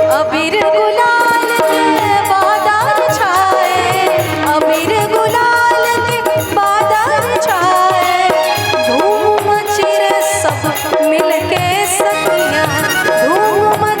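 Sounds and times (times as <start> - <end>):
gliding melody line: 0.0 - 14.0.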